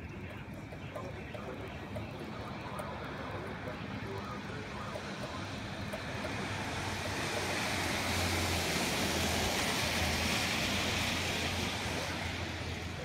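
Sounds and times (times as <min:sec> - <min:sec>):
low steady hum: 0:00.0 - 0:13.0
wind: 0:00.0 - 0:13.0
heavy rain: 0:03.8 - 0:13.0.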